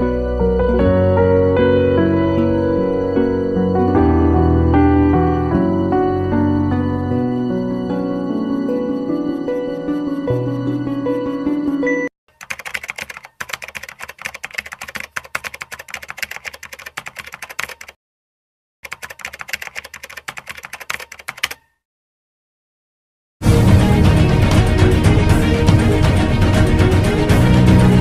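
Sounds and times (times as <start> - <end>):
soft music: 0.0 - 12.1, 23.4 - 28.0
computer keyboard typing: 12.3 - 18.0, 18.8 - 21.7.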